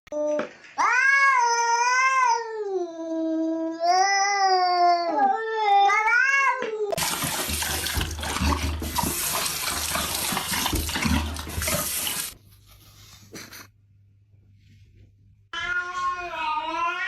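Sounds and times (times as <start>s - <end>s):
running water: 7.0s - 12.4s.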